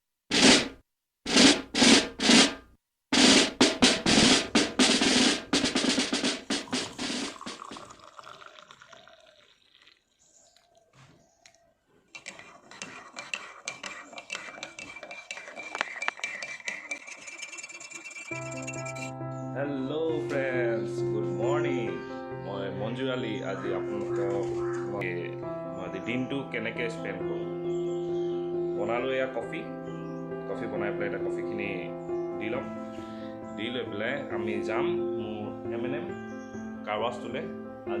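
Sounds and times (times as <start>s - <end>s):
fast drum roll: 0.3s - 2.6s, 3.2s - 8.1s
heavy drum hits: 0.3s - 2.6s, 3.2s - 7.6s.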